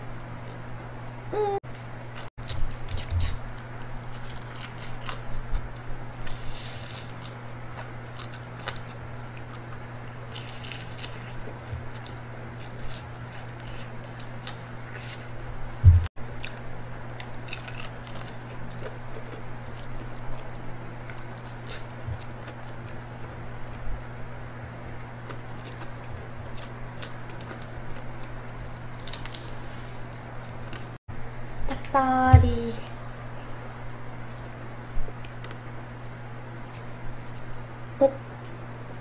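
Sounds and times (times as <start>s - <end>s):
steady low hum: 0.0s - 39.0s
crunchy chewing of fried chicken: 1.6s - 31.0s, 34.2s - 39.0s
heavy thump: 15.8s - 16.1s.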